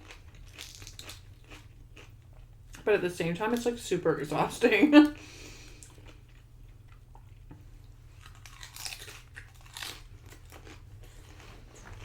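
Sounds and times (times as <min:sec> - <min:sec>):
chewing and crunching chips: 0:00.0 - 0:02.9, 0:05.6 - 0:12.0.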